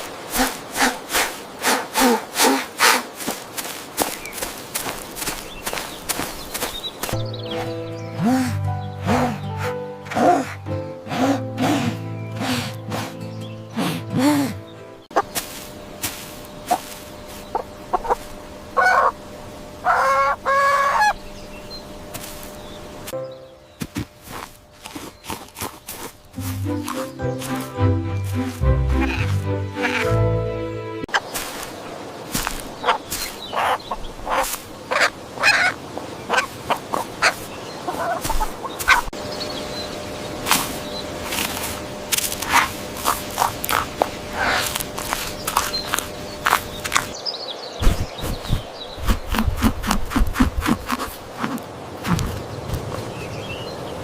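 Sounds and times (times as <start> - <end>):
chickens clucking: 15.1 - 15.5, 16.6 - 19.2, 19.8 - 21.2, 26.4 - 30.2, 32.4 - 39.2
chicken drawn-out calls: 16.7 - 19.2, 19.8 - 21.2, 28.9 - 30.2, 32.8 - 39.1.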